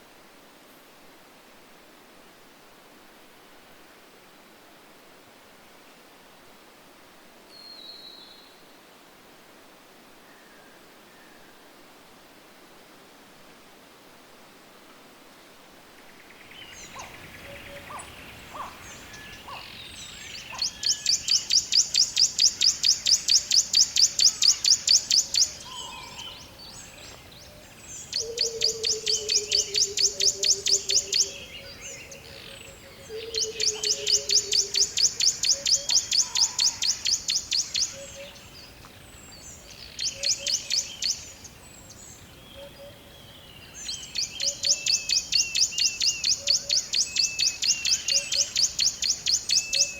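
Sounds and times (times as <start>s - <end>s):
faint bird calls: 16.0s - 49.9s.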